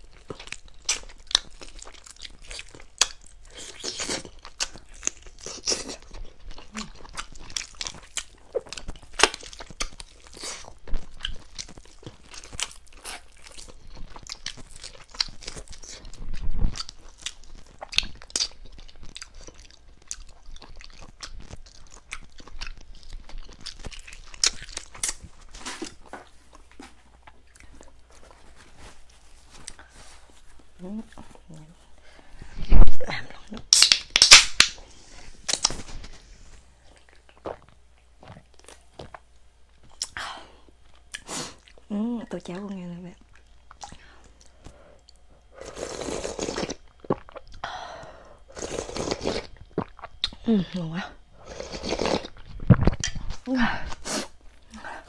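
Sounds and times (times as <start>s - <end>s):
chewing and crunching chicken: 0.0s - 31.6s, 42.5s - 47.6s, 48.4s - 50.5s.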